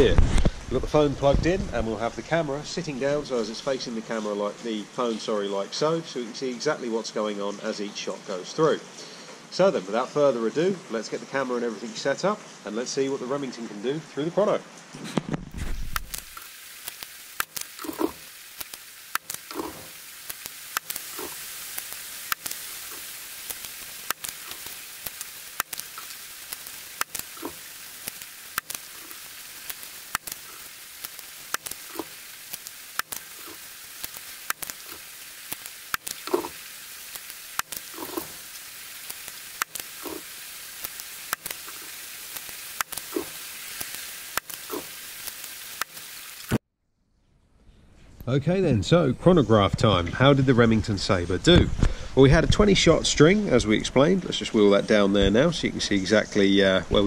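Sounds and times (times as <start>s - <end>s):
heavy rain pouring: 8.4s - 46.6s
water dripping close by: 15.9s - 46.6s.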